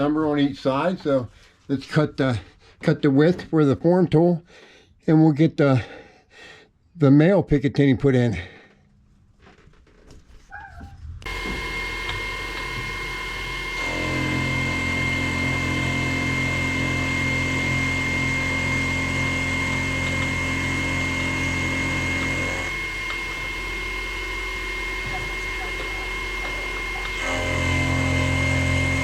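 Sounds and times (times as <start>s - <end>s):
deep motor hum: 10.8s - 29.0s
milling machine high whine: 11.2s - 29.0s.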